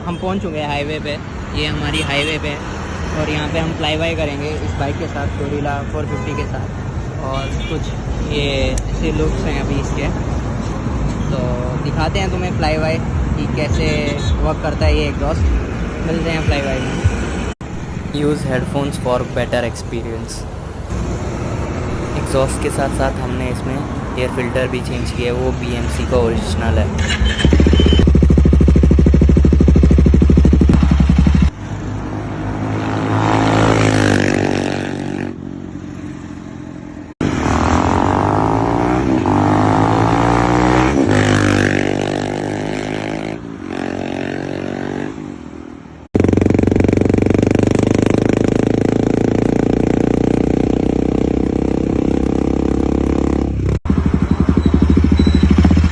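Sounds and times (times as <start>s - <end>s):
motorcycle engine running close: 27.0s - 31.6s, 46.1s - 55.9s
motorcycle passing by: 27.0s - 45.4s, 46.2s - 55.9s.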